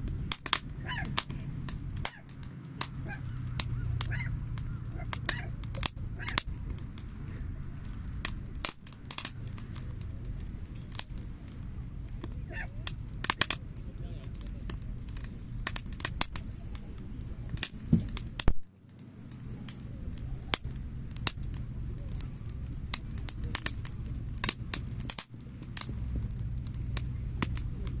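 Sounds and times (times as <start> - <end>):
campfire crackling: 0.0 - 28.0
squeaky whistles from fire: 0.7 - 6.5.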